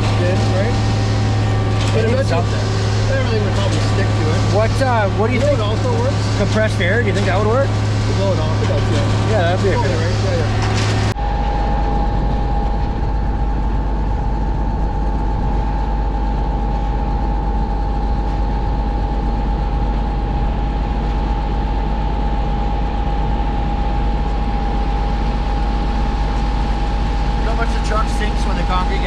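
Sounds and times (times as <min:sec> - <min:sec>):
concrete pump truck running: 0:00.0 - 0:29.0
high whine: 0:00.0 - 0:29.0
wind buffeting microphone: 0:10.9 - 0:27.4.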